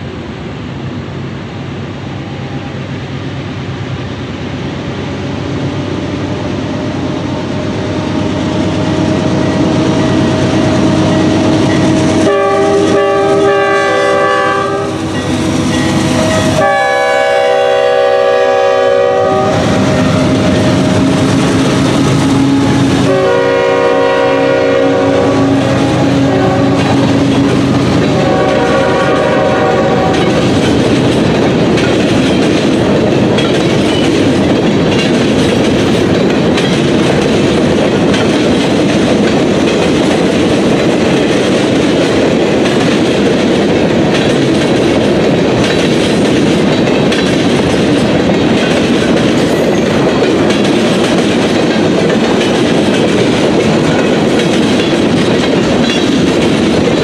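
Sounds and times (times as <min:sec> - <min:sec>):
freight train rumble and clatter: 0:00.0 - 0:57.0
locomotive air horn blasts: 0:10.1 - 0:15.2, 0:16.0 - 0:30.5.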